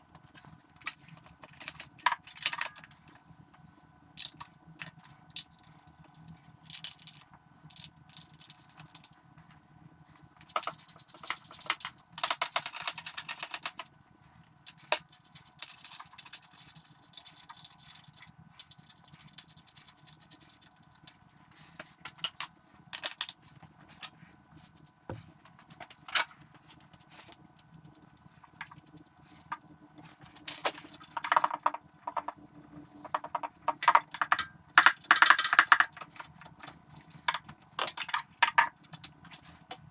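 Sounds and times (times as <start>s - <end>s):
metallic clinks and rattles: 23.9s - 27.4s.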